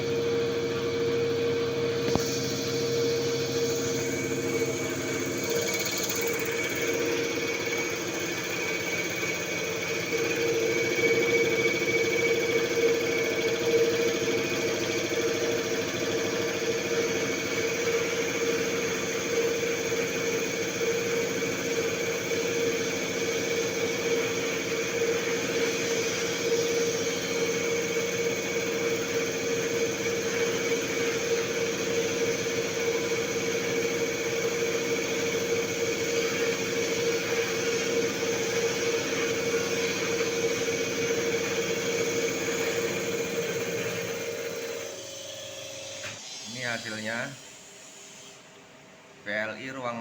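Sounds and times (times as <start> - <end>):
test bench machine hum: 0.0 - 50.0.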